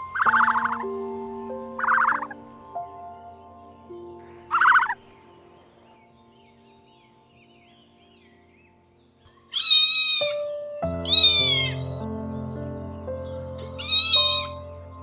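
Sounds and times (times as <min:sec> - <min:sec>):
background music with sustained notes: 0:00.0 - 0:15.0
cat meowing: 0:09.6 - 0:10.4, 0:11.0 - 0:12.0, 0:13.8 - 0:14.6.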